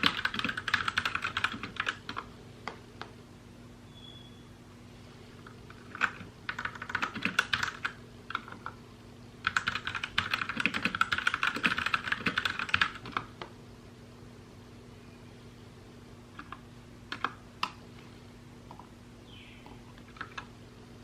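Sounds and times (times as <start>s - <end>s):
typing on mechanical keyboard: 0.0s - 2.3s, 5.7s - 8.8s, 9.4s - 13.3s, 16.4s - 17.4s, 20.1s - 20.5s.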